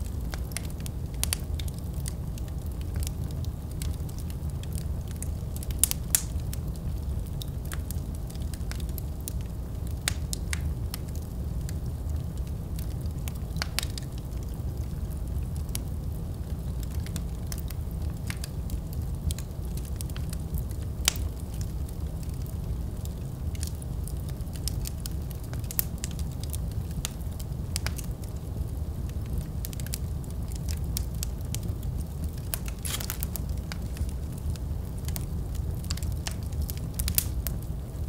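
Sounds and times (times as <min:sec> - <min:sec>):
fire low rumble: 0:00.0 - 0:38.0
wood fire crackling: 0:00.0 - 0:38.0
sharp fire pops: 0:03.8 - 0:08.0, 0:30.6 - 0:37.6.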